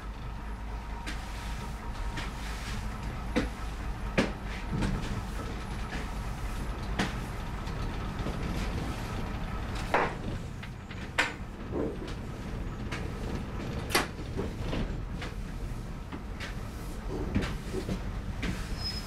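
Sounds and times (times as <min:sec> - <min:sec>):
diesel train rumble: 0:00.0 - 0:19.0
sharp knocks and rattles: 0:03.0 - 0:15.4.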